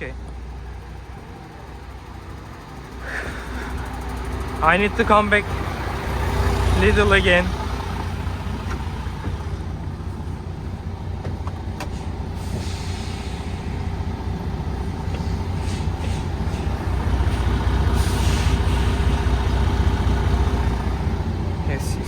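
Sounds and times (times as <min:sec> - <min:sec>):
diesel truck engine running: 0:00.0 - 0:22.0
air brake hiss: 0:11.9 - 0:14.0, 0:15.2 - 0:17.0, 0:18.0 - 0:19.3.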